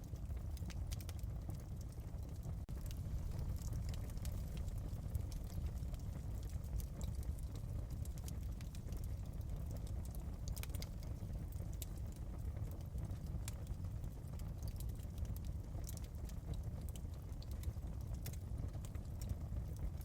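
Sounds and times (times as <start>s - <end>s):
wood fire crackling and popping: 0.0s - 20.0s
low rumble: 2.6s - 9.9s.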